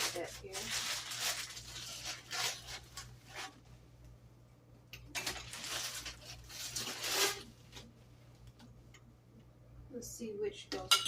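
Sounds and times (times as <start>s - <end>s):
plastic rubbing and rustling: 0.0s - 3.7s, 5.1s - 7.9s.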